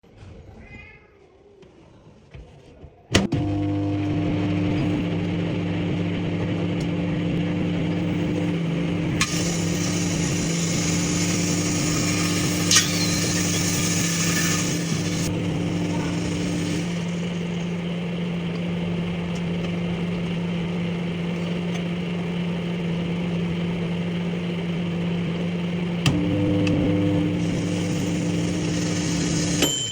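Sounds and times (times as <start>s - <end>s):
microwave oven humming: 3.1s - 29.9s.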